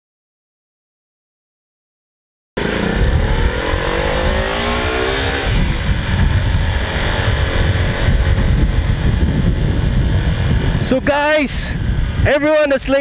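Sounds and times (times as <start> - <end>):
motorcycle engine accelerating: 2.6 - 12.3
wind rumble on microphone: 2.6 - 13.0.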